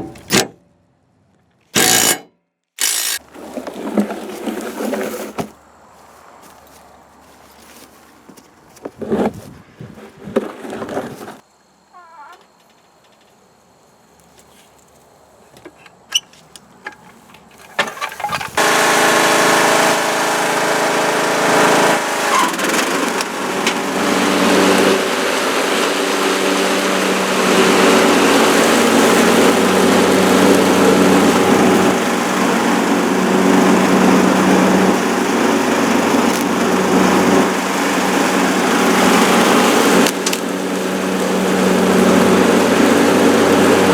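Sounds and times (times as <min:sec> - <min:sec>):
mower engine starting and running: 0:00.0 - 0:00.6, 0:01.8 - 0:05.6, 0:16.9 - 0:43.9
sharp clicks: 0:01.8 - 0:03.2.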